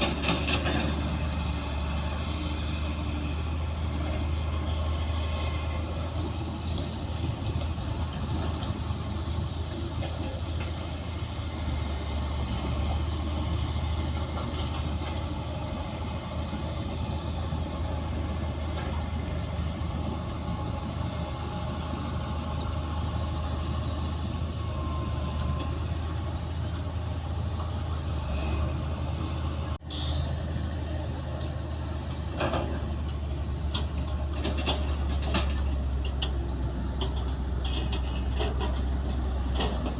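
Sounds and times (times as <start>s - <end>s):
bulldozer diesel engine running: 0.0s - 39.9s
metallic clanks: 31.4s - 39.9s.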